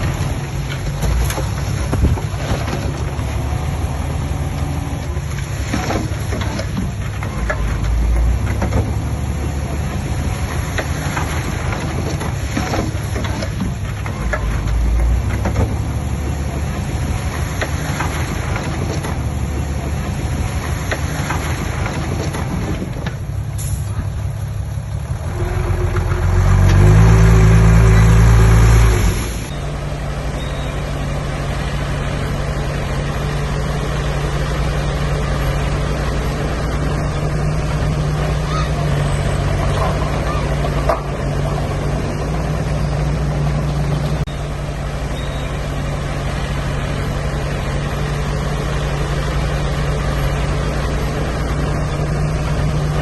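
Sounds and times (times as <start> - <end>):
diesel earthmoving machinery: 0.0 - 53.0
engine revving under load: 24.6 - 53.0.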